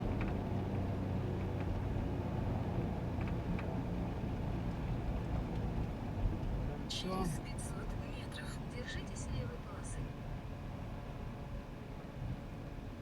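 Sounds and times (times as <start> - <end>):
van engine hum and road noise: 0.0 - 13.0
faint light ticks: 3.2 - 3.7, 4.6 - 6.6.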